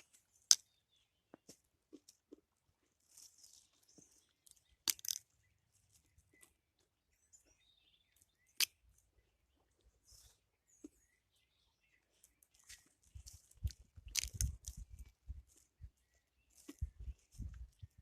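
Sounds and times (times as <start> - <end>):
soft rustling: 1.4 - 4.3.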